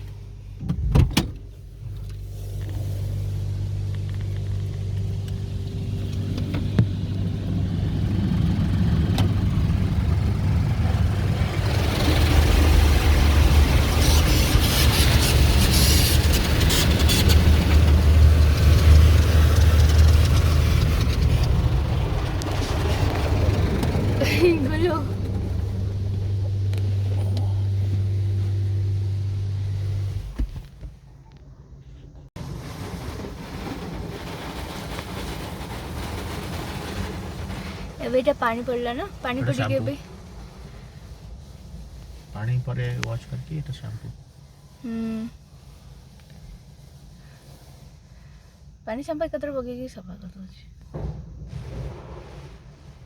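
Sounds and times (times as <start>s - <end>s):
car wash machinery humming: 0.0s - 49.5s, 50.8s - 53.0s
thump: 0.6s - 1.4s, 50.8s - 53.0s
hissing water spray: 2.2s - 29.6s, 32.4s - 44.8s.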